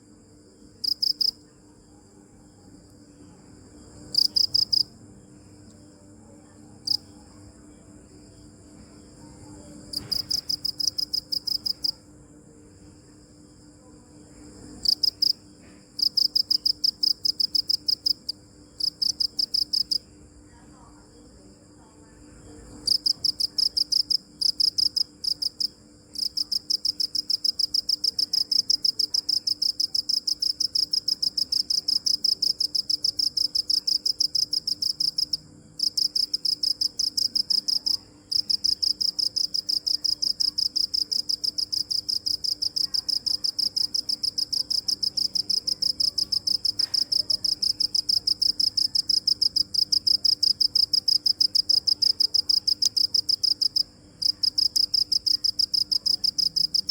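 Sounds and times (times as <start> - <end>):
cricket chirping: 0.0 - 56.9.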